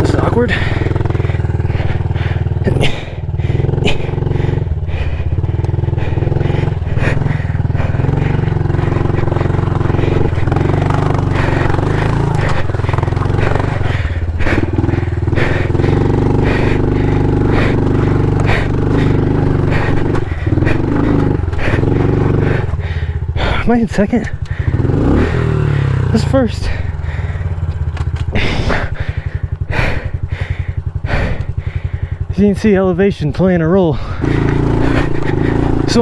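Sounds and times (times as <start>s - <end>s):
small motorbike engine running: 0.0s - 36.0s
bike knocking over rocks: 10.1s - 14.8s, 27.7s - 28.6s.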